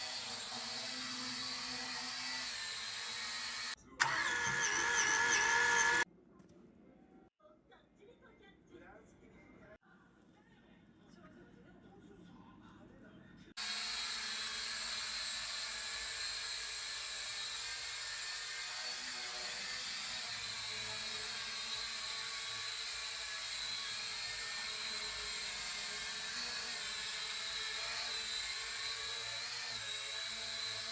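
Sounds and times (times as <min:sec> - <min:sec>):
toy drone motors whining: 0:00.0 - 0:06.0.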